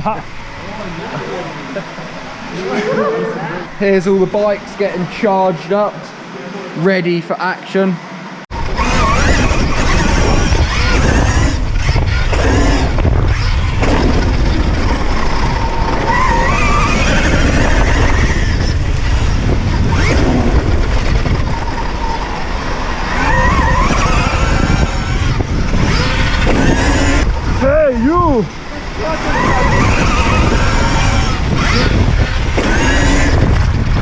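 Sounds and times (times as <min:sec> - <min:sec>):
electric motor whine: 0:08.5 - 0:34.0
tyres skidding on dirt: 0:08.5 - 0:34.0.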